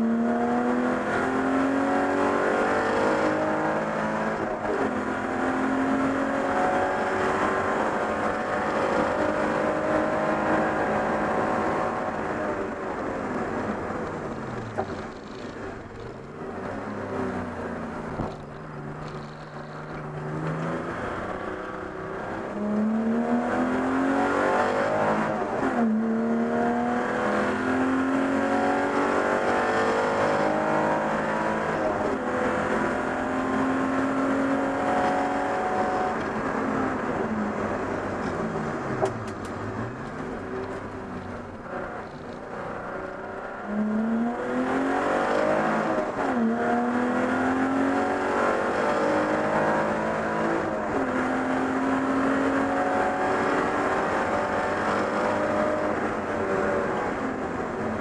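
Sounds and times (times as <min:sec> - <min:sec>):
race car engine revving: 0:00.0 - 0:58.0
gear change: 0:06.0 - 0:22.9, 0:33.9 - 0:47.0.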